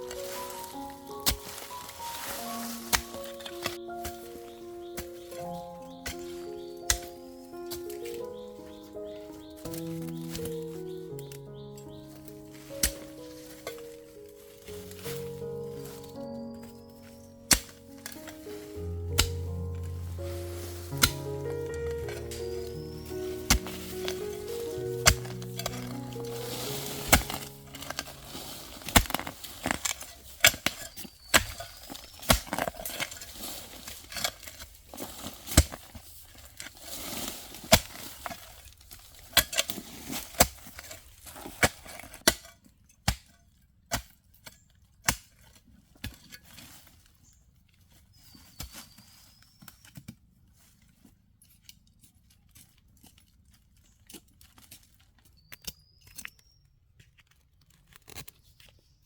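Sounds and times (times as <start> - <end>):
rustling: 0.0 - 42.2.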